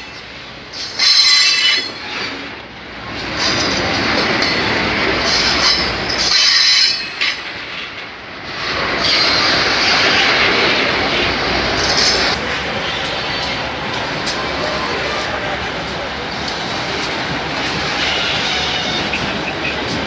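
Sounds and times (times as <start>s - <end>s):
train wheel squeals: 0.0s - 2.5s, 5.3s - 7.6s, 8.9s - 10.2s, 17.6s - 20.0s
train wheels rumbling on rails: 0.0s - 20.0s.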